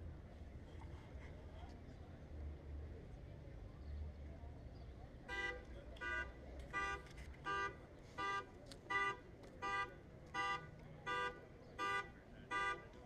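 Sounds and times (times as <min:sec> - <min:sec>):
car horn blasts: 0:05.3 - 0:12.9.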